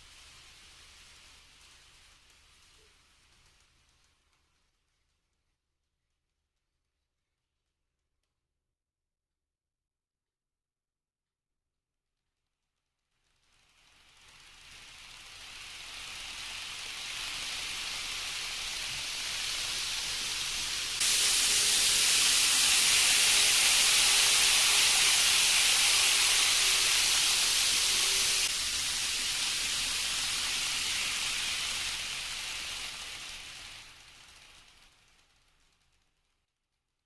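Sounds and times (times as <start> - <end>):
high-speed train rushing past: 15.3 - 35.2.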